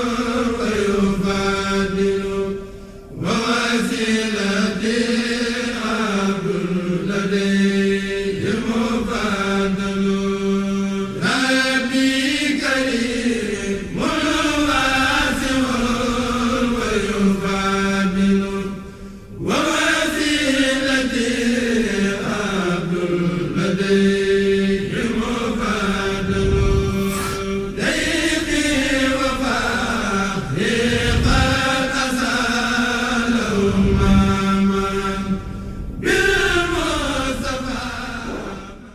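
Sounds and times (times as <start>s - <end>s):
person chanting: 0.0s - 38.9s
low held drone note: 25.7s - 32.1s.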